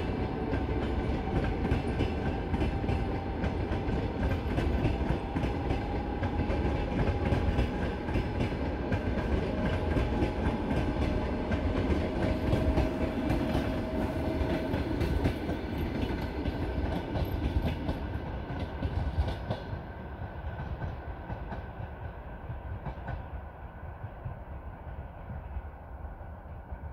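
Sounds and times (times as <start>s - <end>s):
train wheels clicking over rail joints: 0.0s - 19.8s.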